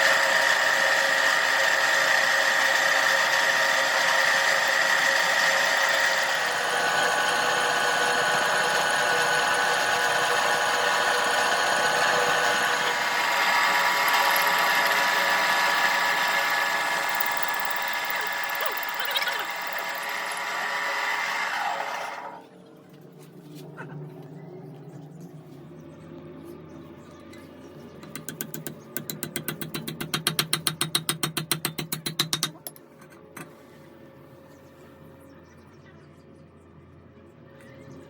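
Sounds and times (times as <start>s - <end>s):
machine motor whining: 0.0s - 22.5s.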